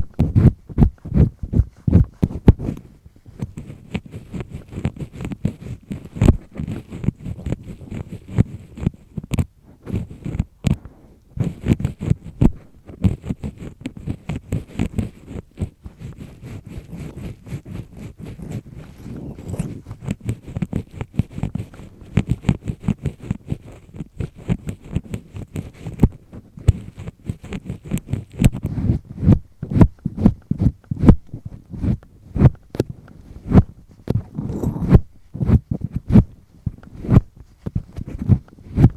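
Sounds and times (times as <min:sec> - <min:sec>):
earpick scraping in ear: 0:00.0 - 0:38.9.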